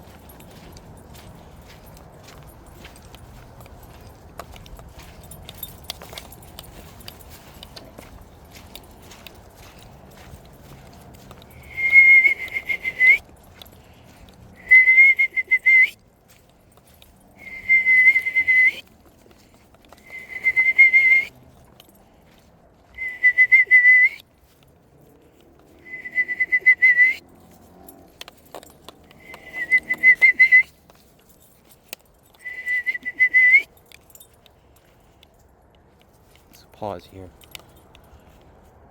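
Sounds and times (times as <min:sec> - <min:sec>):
person whistling owl calls: 0:23.0 - 0:24.2, 0:29.2 - 0:30.7, 0:32.4 - 0:33.7.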